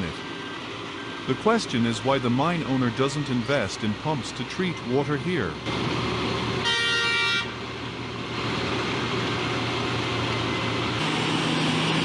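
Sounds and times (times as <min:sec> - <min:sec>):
diesel engine running under load: 0:00.0 - 0:12.0
machine horn blast: 0:06.6 - 0:07.6.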